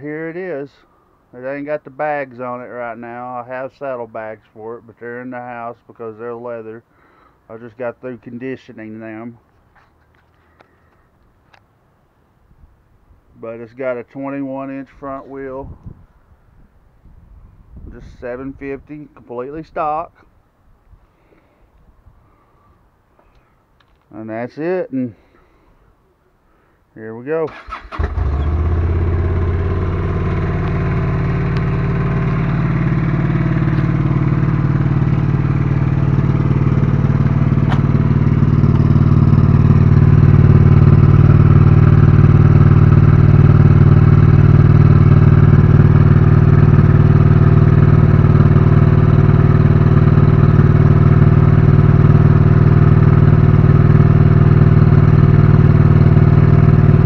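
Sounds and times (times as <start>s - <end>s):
motorcycle engine idling: 27.7s - 57.0s.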